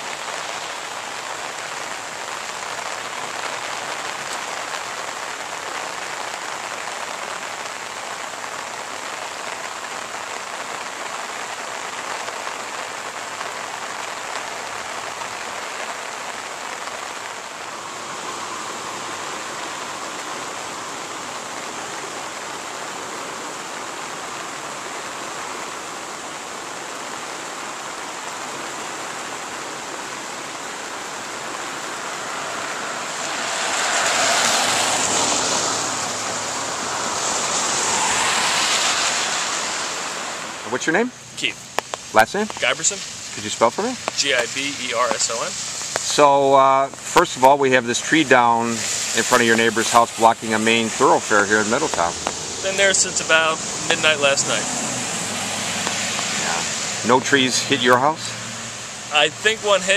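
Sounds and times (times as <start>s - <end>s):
water hissing: 31.2s - 59.9s.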